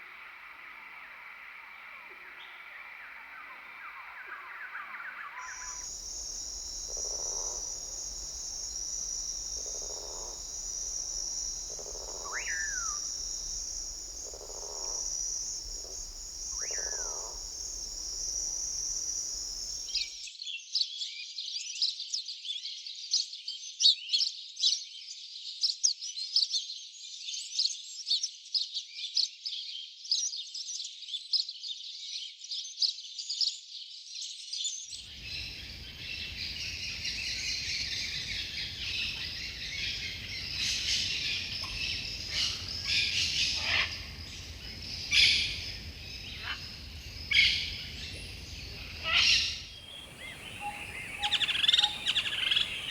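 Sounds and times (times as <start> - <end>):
falling whistled bird notes: 5.4 - 20.1, 49.9 - 52.9
high insect drone: 5.4 - 20.1, 35.2 - 52.9
rapid high-pitched bird chirps: 5.4 - 20.1, 49.9 - 52.9
soft low calls: 5.5 - 20.0, 49.9 - 52.9.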